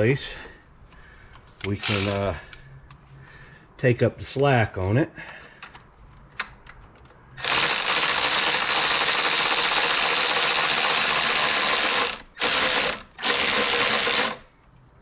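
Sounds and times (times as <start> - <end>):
cordless power driver spinning: 1.6 - 2.3, 7.4 - 14.4.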